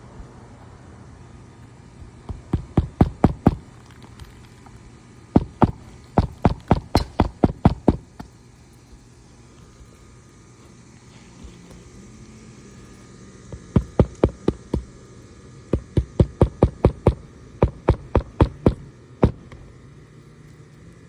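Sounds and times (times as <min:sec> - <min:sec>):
hammer striking roofing nails: 0:02.0 - 0:04.5, 0:05.3 - 0:08.4, 0:13.5 - 0:15.0, 0:15.7 - 0:19.6.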